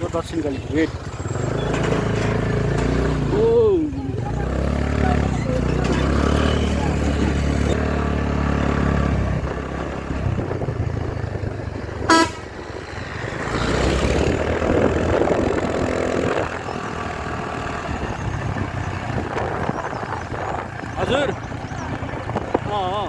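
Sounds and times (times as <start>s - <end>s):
vehicle engine and road noise: 0.0s - 23.0s
vehicle horn toot: 12.0s - 12.8s.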